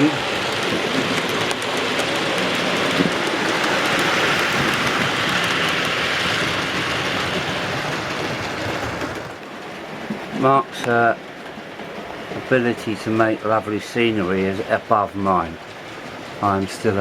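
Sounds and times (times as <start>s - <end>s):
model train running on track: 0.0s - 17.0s.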